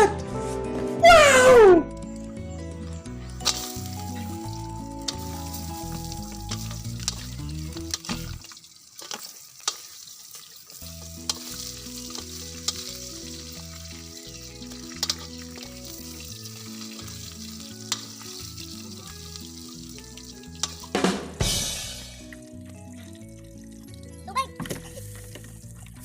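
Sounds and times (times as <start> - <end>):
background music with bass line: 0.0 - 8.4, 10.8 - 26.0
food sizzling in a wok: 3.1 - 23.0
utensil clicking against pan: 5.0 - 5.4, 6.4 - 10.0, 11.1 - 12.9, 14.6 - 15.7, 17.8 - 18.2, 20.6 - 20.9.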